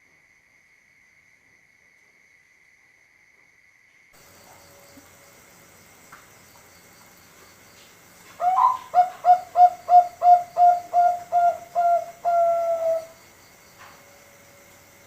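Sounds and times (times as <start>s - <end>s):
dove cooing: 8.4s - 13.2s.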